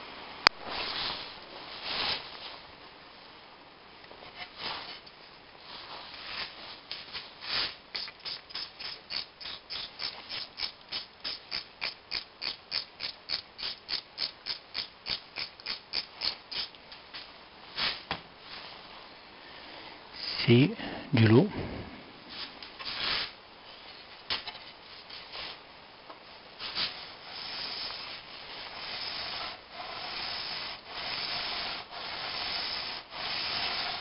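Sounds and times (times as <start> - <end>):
hand abrasive scraping: 26.7 - 34.0.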